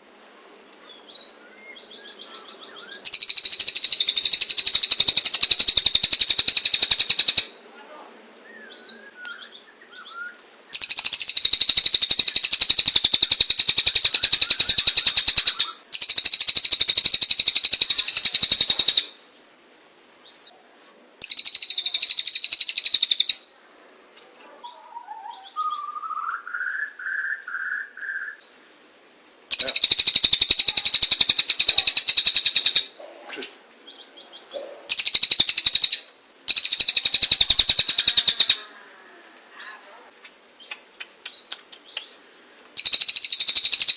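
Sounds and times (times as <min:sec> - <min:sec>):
songbirds trilling: 0:00.9 - 0:07.6, 0:08.5 - 0:19.2, 0:24.4 - 0:28.7, 0:29.5 - 0:43.9
rising whistled bird notes: 0:01.1 - 0:07.4, 0:08.4 - 0:19.1, 0:24.7 - 0:28.5.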